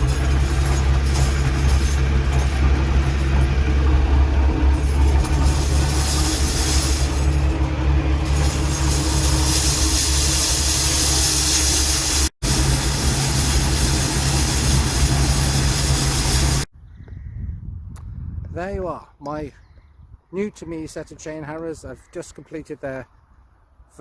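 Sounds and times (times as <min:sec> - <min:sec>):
tractor diesel engine running: 0:00.0 - 0:16.7.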